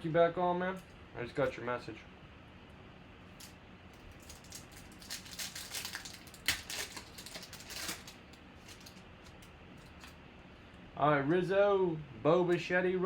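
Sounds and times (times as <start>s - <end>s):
cards and wrapper handled: 3.4s - 10.2s.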